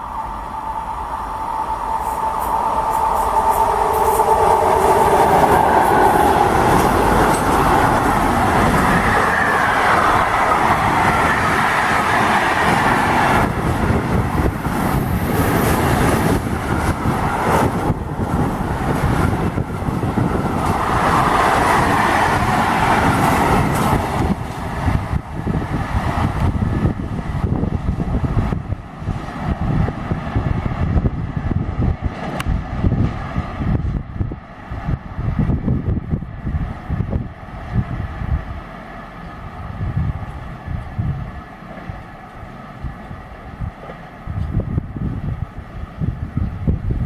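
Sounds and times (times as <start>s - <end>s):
steady tone: 0.0s - 12.0s
train wheels clacking on rails: 2.2s - 26.8s.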